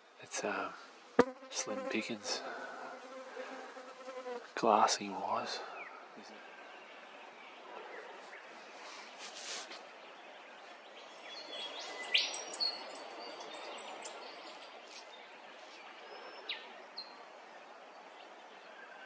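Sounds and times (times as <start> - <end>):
steady outdoor hiss: 0.0 - 19.0
birds chirping and whistling: 11.0 - 17.2.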